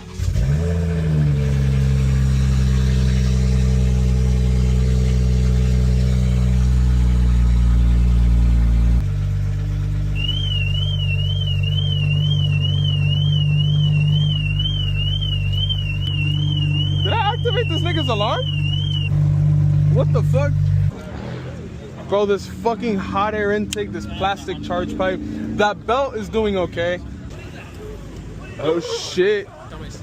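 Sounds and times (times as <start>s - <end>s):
car engine idling: 0.0s - 30.0s
car alarm warbling siren: 10.1s - 19.2s.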